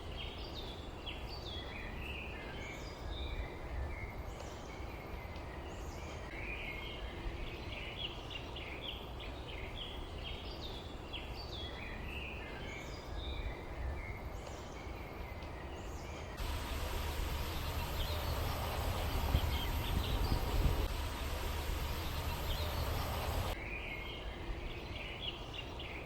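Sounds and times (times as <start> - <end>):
small birds chirping: 0.1 - 24.0
loud even hiss: 16.4 - 23.6
steady low rumble: 16.4 - 23.6.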